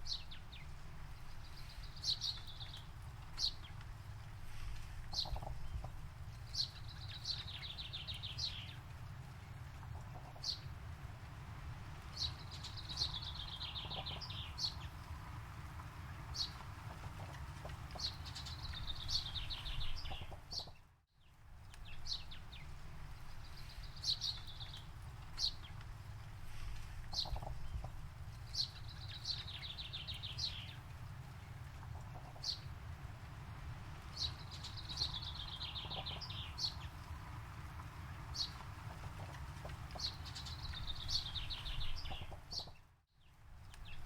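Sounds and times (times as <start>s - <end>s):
songbirds chirping and trilling: 0.0s - 44.0s
steady low rumble: 21.5s - 42.6s.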